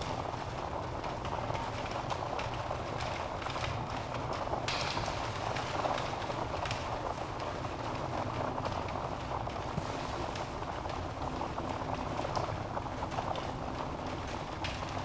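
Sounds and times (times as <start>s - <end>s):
fire flames hissing: 9.8s - 11.5s.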